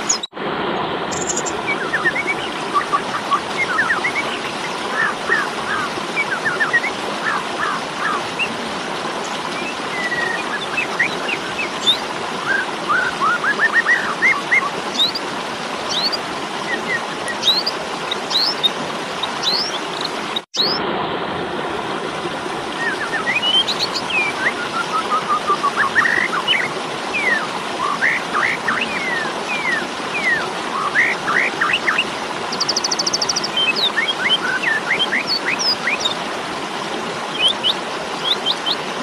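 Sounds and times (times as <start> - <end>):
starling sharp whistled calls: 0.0 - 0.3, 1.1 - 4.2, 11.8 - 15.2, 15.9 - 20.8, 22.8 - 36.2.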